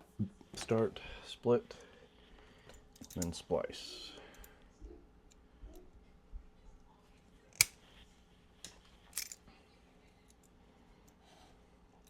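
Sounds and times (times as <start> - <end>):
wire cutter snipping wire: 7.6 - 7.8.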